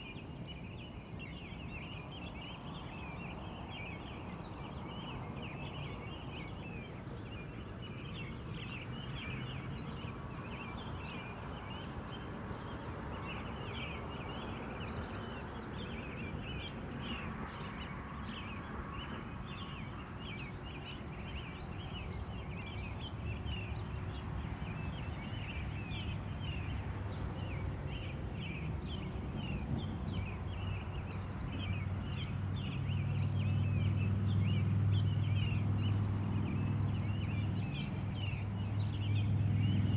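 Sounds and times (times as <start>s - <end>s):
birds chirping: 13.2s - 30.9s.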